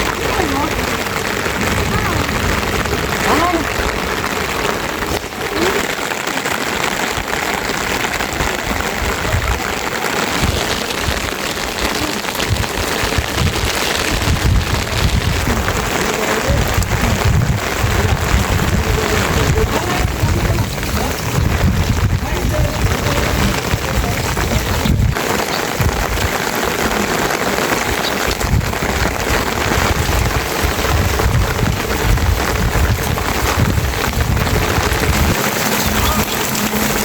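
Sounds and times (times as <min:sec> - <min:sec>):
steady rain falling: 0:00.0 - 0:37.0
low rumble: 0:12.3 - 0:25.2, 0:28.3 - 0:37.0.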